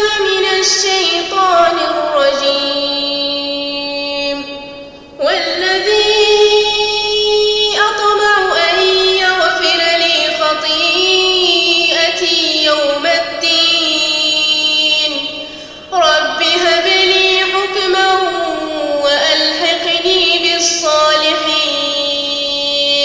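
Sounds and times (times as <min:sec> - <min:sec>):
woman reciting melodically: 0:00.0 - 0:23.0.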